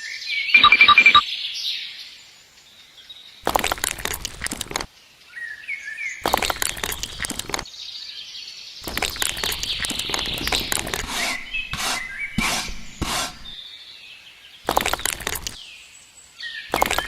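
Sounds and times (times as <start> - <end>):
small birds chirping: 2.9 - 17.0
scraping and clattering: 8.8 - 13.6.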